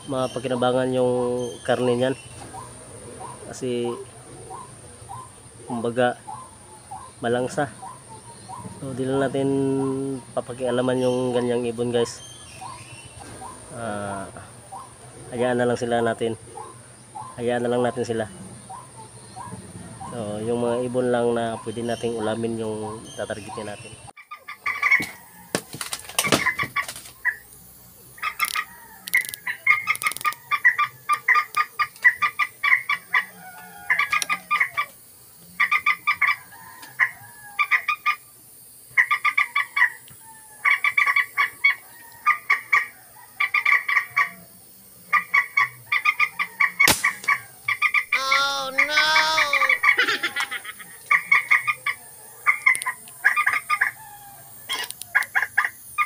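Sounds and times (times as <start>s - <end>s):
birds clucking calls: 0.0s - 56.0s
sharp click: 46.8s - 47.4s.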